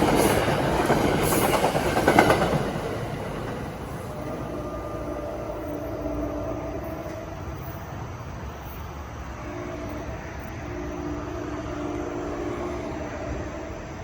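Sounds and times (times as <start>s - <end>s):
train rumbling by: 0.0s - 14.0s.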